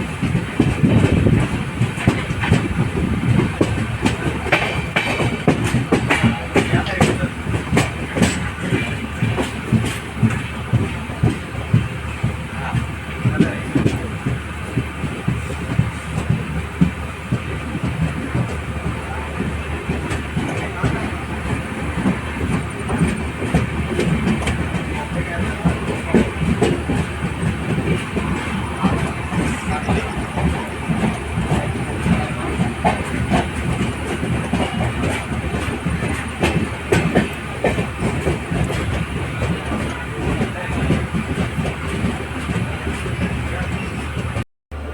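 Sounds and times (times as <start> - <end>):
train coach rumbling on track: 0.0 - 44.9
sharp clicks and knocks: 0.2 - 11.4.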